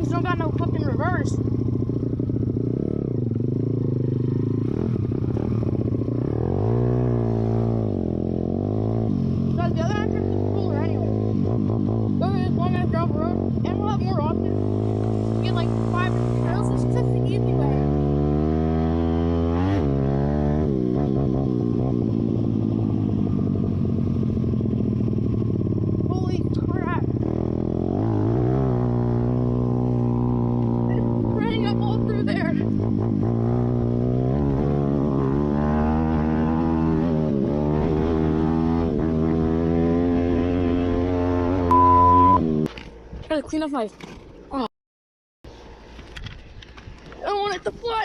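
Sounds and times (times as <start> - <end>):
motorcycle engine idling: 0.0 - 6.5, 9.2 - 17.5, 22.1 - 27.9
motorbike engine revving: 0.0 - 42.8.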